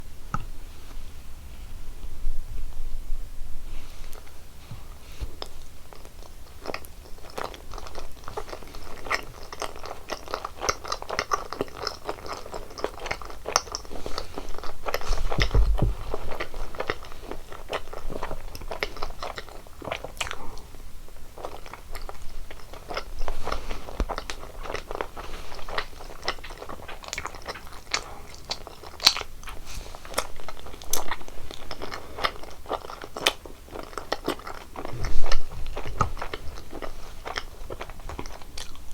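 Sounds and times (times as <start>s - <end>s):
crunching and chewing sweets: 4.0s - 38.9s
dull low thump: 15.2s - 16.3s, 34.9s - 36.3s.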